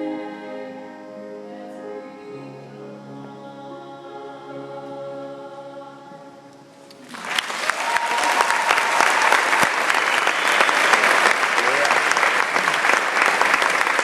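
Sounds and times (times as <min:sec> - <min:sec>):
person singing with accompaniment: 0:00.0 - 0:07.1
audience applause: 0:07.0 - 0:14.0.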